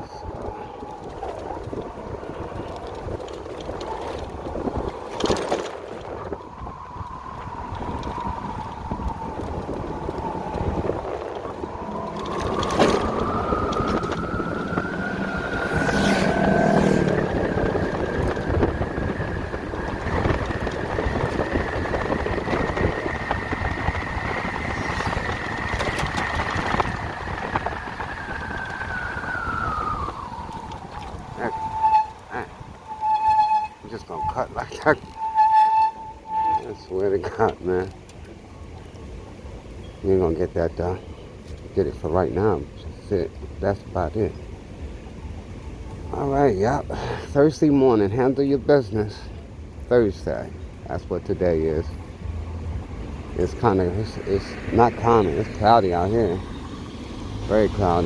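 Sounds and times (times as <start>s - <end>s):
wind rush: 0.0s - 36.7s.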